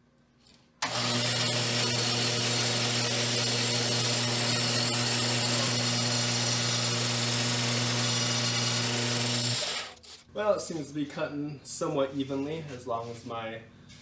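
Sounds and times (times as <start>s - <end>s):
bandsaw motor hum: 0.8s - 10.1s.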